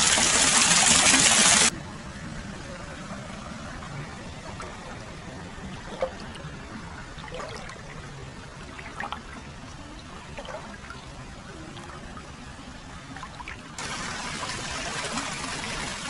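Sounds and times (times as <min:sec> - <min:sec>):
water trickling: 0:02.9 - 0:16.0
small water splashes: 0:04.0 - 0:15.4.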